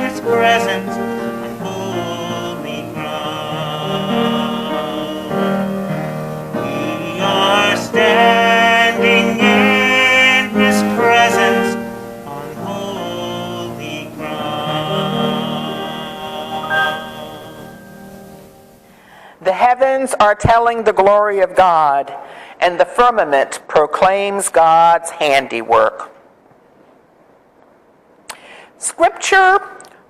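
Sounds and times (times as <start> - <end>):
person singing sacred song: 0.0 - 18.8
instrumental accompaniment: 0.0 - 18.9.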